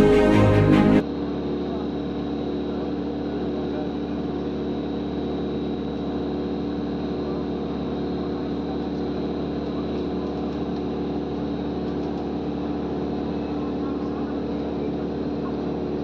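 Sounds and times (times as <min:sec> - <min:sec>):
airplane engines droning: 0:00.0 - 0:01.2.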